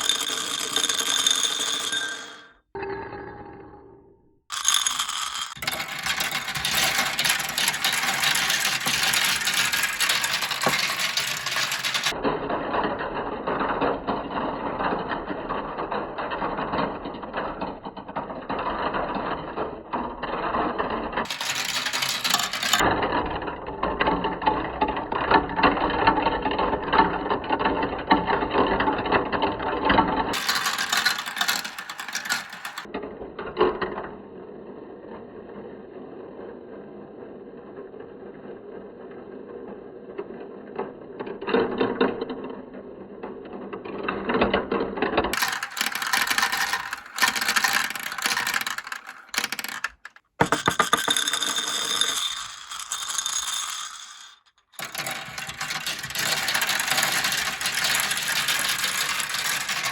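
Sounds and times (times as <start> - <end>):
marbles rattling down plastic run: 0.0 - 2.5, 4.5 - 12.2, 21.2 - 22.9, 30.3 - 32.9, 45.3 - 59.9.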